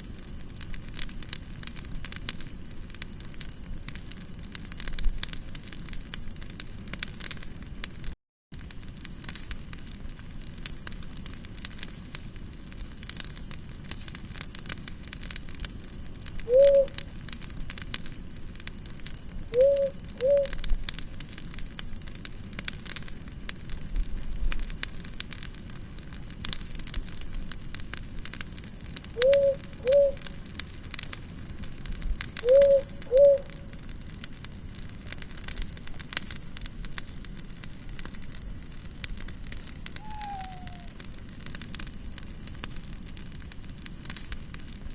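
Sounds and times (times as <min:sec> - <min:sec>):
campfire crackling: 0:00.0 - 0:44.9
rapid high chirping: 0:11.6 - 0:12.5, 0:13.9 - 0:14.7, 0:25.2 - 0:26.7, 0:40.0 - 0:40.9
short low calls: 0:40.0 - 0:40.9.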